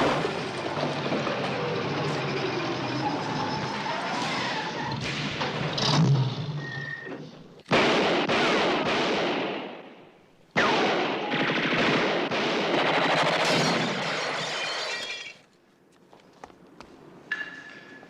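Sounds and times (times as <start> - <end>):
loud crash: 12.8 - 15.4
glass breaking and debris clattering: 13.4 - 15.4.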